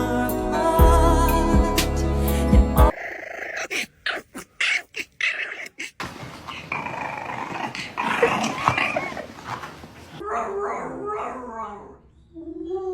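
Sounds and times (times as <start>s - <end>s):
dog growling: 2.9s - 11.4s.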